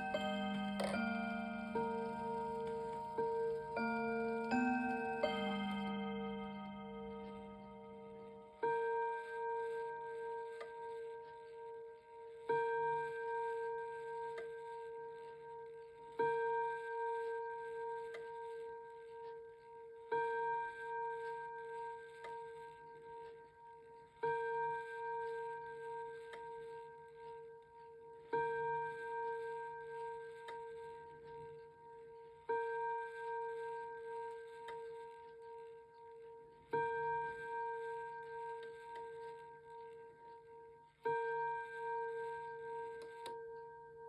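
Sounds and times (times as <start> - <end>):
clock chime rod ringing: 0.0 - 10.0
faint clock movement click: 0.4 - 3.8.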